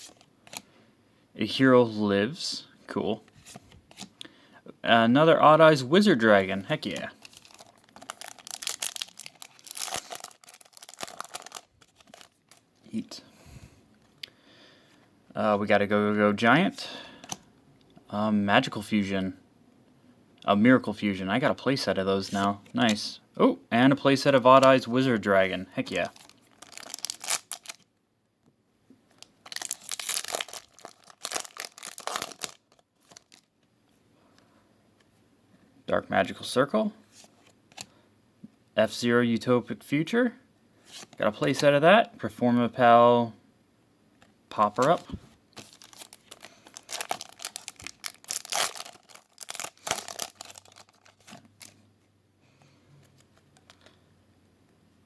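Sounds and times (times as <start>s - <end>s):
foil wrapper crinkling and tearing: 6.8s - 12.6s, 25.9s - 27.8s, 29.2s - 33.5s, 45.6s - 51.8s.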